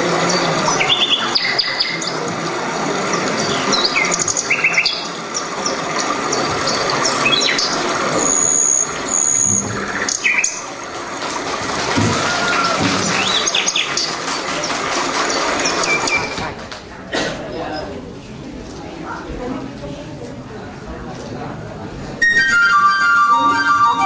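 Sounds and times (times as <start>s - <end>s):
bird chirps and trills: 0.3s - 2.2s, 3.1s - 10.6s, 13.1s - 16.3s
bird whistles: 7.0s - 10.6s.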